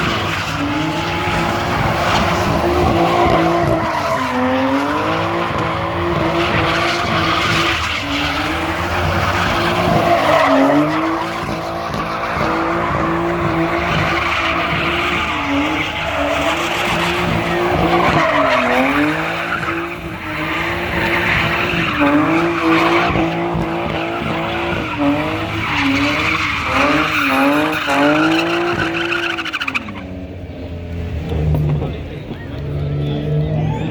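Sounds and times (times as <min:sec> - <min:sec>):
tyres squealing: 0:00.0 - 0:30.0
car engine at high revs: 0:00.0 - 0:33.9.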